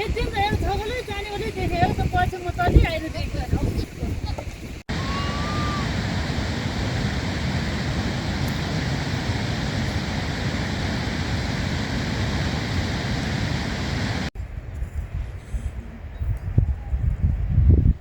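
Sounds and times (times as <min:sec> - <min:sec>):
stream rushing: 0:04.6 - 0:14.3.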